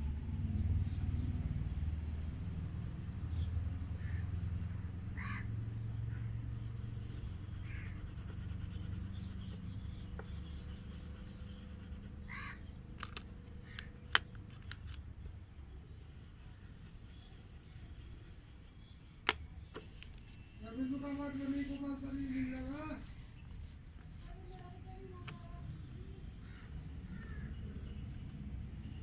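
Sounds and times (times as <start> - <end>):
short bird calls: 5.2 - 5.5, 10.4 - 12.7, 26.4 - 28.2.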